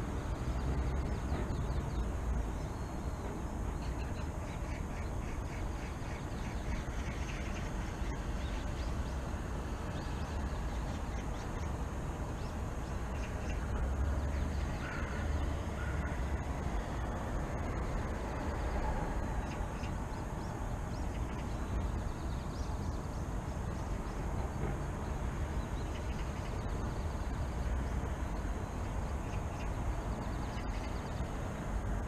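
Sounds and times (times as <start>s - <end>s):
birds calling: 0.0s - 17.2s
city background rumble: 0.0s - 32.0s.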